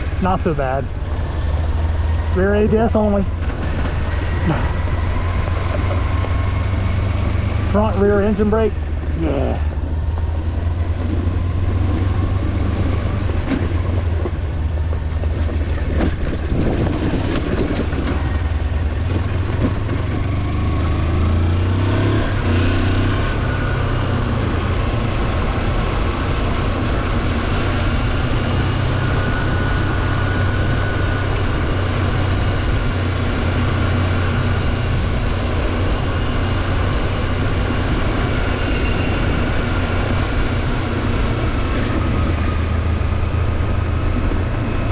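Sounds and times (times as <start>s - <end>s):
motorcycle engine running: 0.0s - 44.9s
high-pitched whine: 33.9s - 44.9s.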